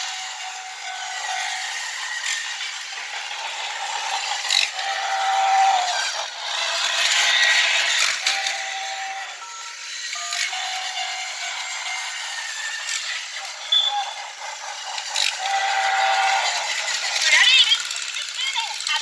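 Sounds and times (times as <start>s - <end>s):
toy train rattling on track: 0.0s - 19.0s
electronic beep tones: 13.7s - 14.2s.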